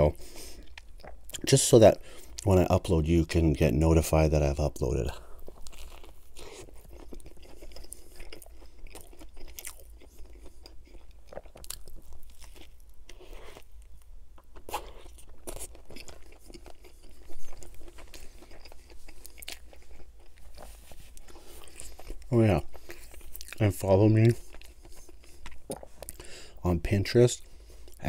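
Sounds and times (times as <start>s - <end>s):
person chewing crunchy sandwich: 0.1s - 2.4s, 5.1s - 26.6s, 27.4s - 28.0s
wet mouth sounds: 24.4s - 26.3s.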